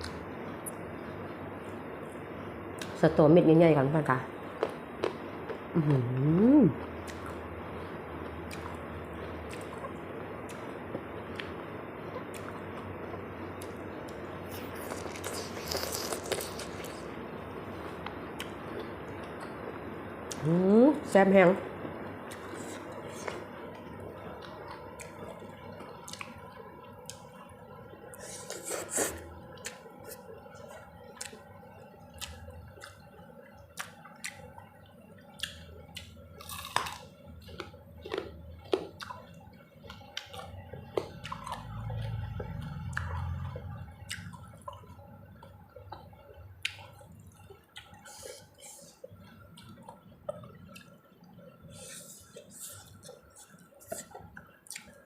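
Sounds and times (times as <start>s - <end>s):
wet chewing and mouth smacks: 6.9s - 7.4s, 9.4s - 11.6s, 12.2s - 17.1s, 24.4s - 27.4s, 28.1s - 31.4s, 32.1s - 55.0s.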